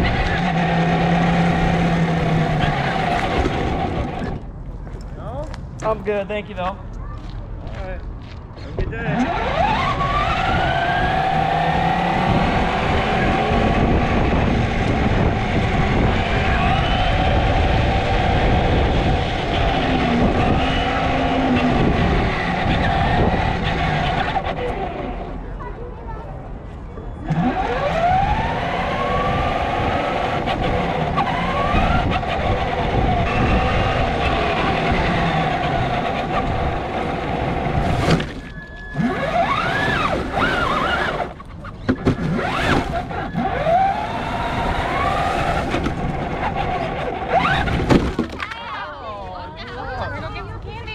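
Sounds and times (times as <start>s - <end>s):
wind on microphone: 8.6s - 24.5s, 27.3s - 48.2s
electric motor whine: 38.6s - 41.4s, 42.3s - 47.8s.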